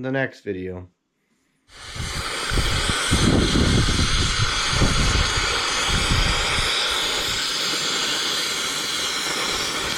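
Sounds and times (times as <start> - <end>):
loud steady rushing noise: 1.8 - 7.4
low rumbling buffets: 1.8 - 7.4.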